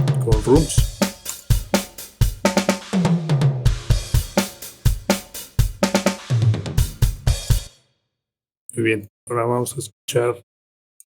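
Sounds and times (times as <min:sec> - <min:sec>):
drum kit groove: 0:00.0 - 0:07.8.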